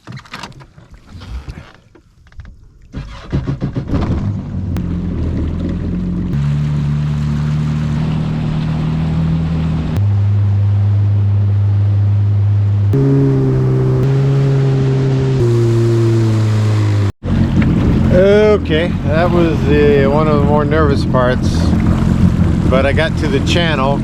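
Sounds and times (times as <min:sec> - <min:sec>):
jet ski engine starting: 0:02.9 - 0:24.0
sustained music chords: 0:06.4 - 0:17.1.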